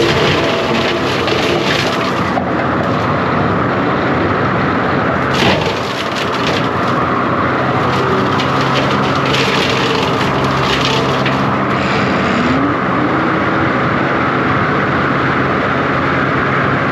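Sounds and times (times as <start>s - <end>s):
wood cracking and snapping: 0.0s - 3.1s, 5.2s - 11.8s
diesel engine running hard: 0.0s - 16.9s
saw cutting through brush: 7.6s - 12.4s.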